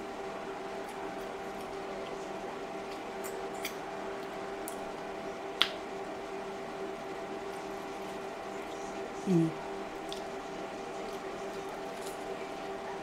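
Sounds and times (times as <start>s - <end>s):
steady background hum: 0.0s - 13.0s
soft chewing: 0.7s - 5.0s, 7.4s - 13.0s.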